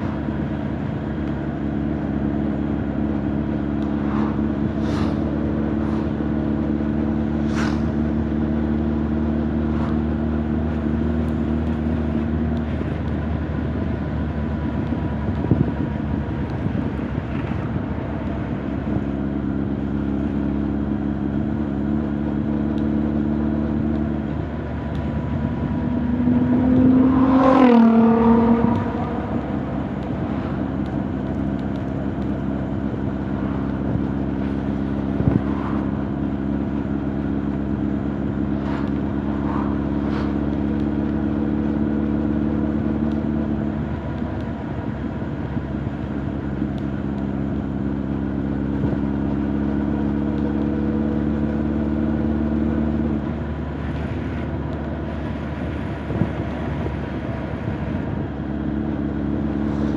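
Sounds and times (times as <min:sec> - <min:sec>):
motorcycle engine revving: 0:19.9 - 0:43.8.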